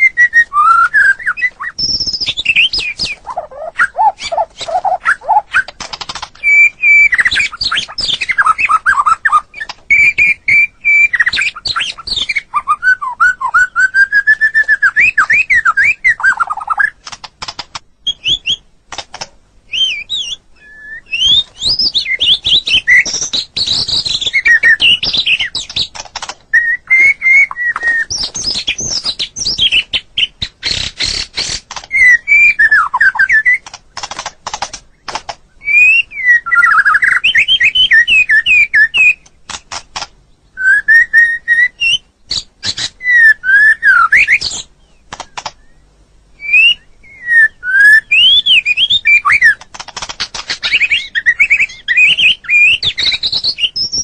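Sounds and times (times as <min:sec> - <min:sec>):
bird singing whistles and trills: 0:00.0 - 0:05.8, 0:06.4 - 0:17.0, 0:18.0 - 0:18.7, 0:19.7 - 0:33.7, 0:34.9 - 0:39.2, 0:40.3 - 0:54.0
rapid sharp bird clicks: 0:01.3 - 0:12.4, 0:14.6 - 0:17.9, 0:18.9 - 0:19.4, 0:21.1 - 0:35.5, 0:36.6 - 0:40.2, 0:44.2 - 0:45.7, 0:48.6 - 0:53.5.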